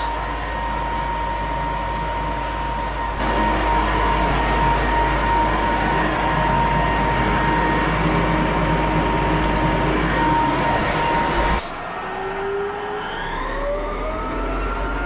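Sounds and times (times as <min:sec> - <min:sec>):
floor sander grinding: 0:00.0 - 0:15.0.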